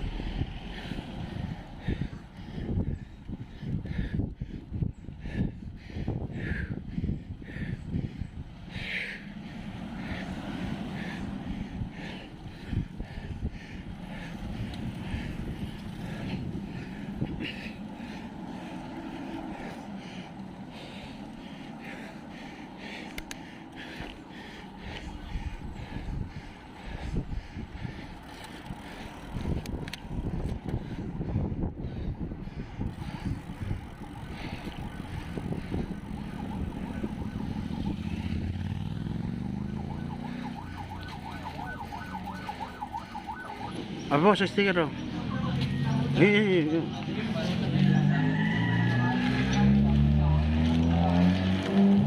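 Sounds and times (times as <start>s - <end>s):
vehicle engine passing: 0.0s - 2.8s, 6.3s - 52.0s
wind noise: 0.0s - 9.2s, 25.1s - 39.0s
road traffic rumble: 0.0s - 52.0s
warbling siren: 24.8s - 26.7s, 33.0s - 44.3s, 47.7s - 51.5s.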